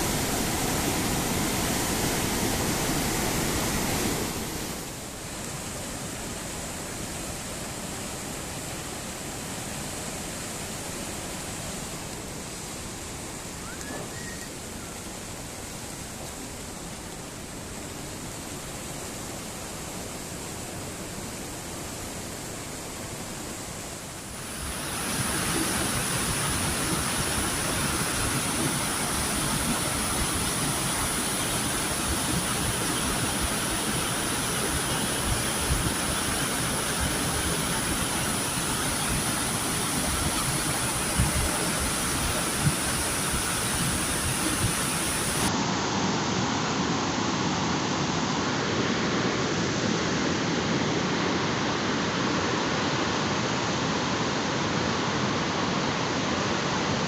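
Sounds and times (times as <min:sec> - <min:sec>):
floodwater rushing: 0:00.0 - 0:57.0.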